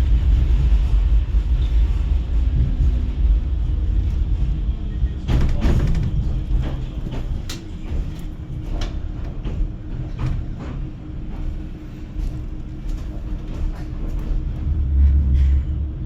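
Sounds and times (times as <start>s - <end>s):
tram interior rumble: 0.0s - 16.0s
sharp clicks and knocks: 5.3s - 11.4s.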